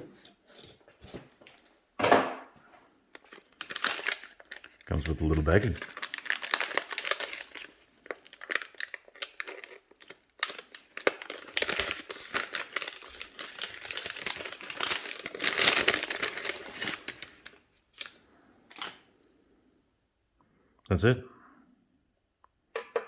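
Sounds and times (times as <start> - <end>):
plastic bag crinkling: 3.2 - 19.1.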